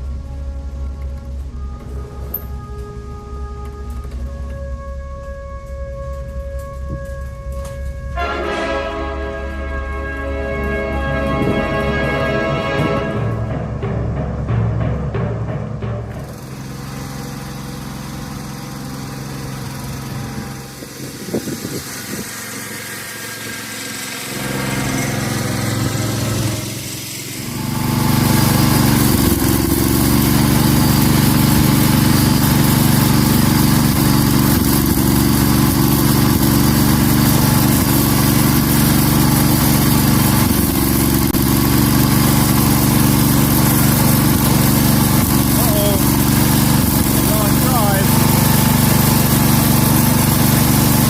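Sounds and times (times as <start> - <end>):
garden tractor engine running: 15.9 - 51.0.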